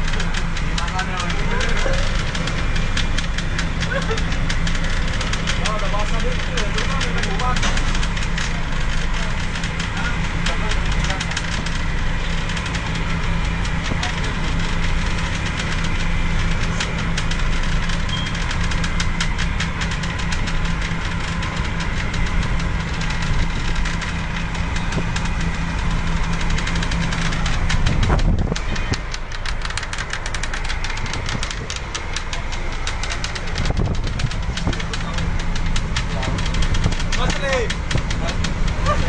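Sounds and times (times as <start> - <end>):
wind buffeting microphone: 20.0 - 39.0.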